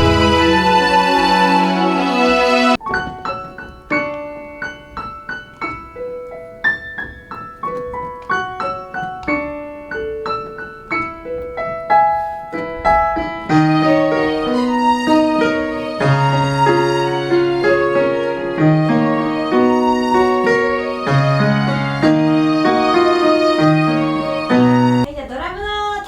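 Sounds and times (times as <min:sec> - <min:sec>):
fuller louder music passage: 0:00.0 - 0:02.8, 0:12.6 - 0:25.1
lower piano chords: 0:00.0 - 0:25.1
slow piano melody: 0:00.0 - 0:25.1.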